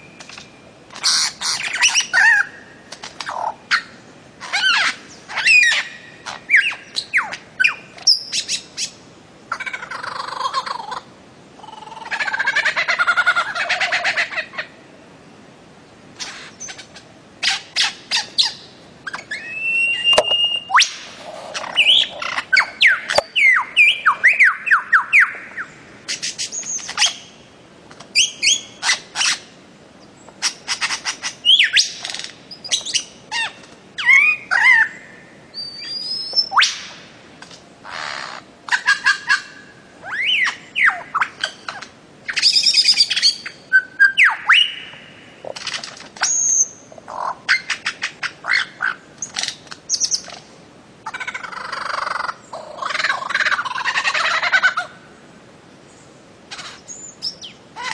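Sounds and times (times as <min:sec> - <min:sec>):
bird calling with sharp notes: 0:00.0 - 0:11.0, 0:16.2 - 0:27.4, 0:37.8 - 0:50.4
harsh bird squawks: 0:01.0 - 0:02.6, 0:03.2 - 0:08.9, 0:09.5 - 0:11.0, 0:16.2 - 0:27.3, 0:37.8 - 0:50.4, 0:51.0 - 0:55.0
sliding bird whistles: 0:19.2 - 0:21.0.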